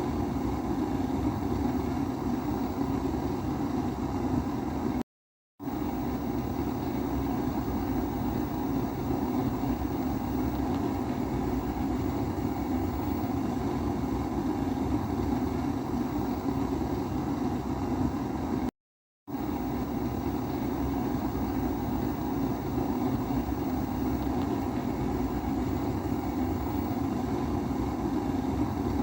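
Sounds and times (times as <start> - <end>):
pressure stove roaring: 5.6 - 18.7, 19.3 - 29.0.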